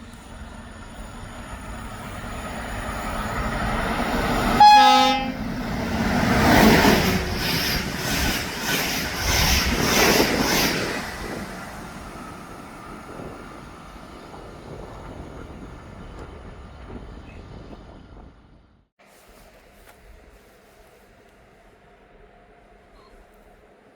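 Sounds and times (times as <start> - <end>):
train passing at speed: 0.0 - 23.9
train horn blast: 4.6 - 5.5.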